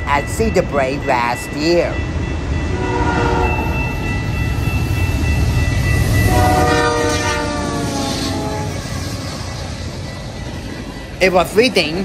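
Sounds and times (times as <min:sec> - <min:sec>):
freight train rumbling: 0:00.0 - 0:12.0
locomotive horn: 0:02.7 - 0:03.6, 0:06.3 - 0:08.8.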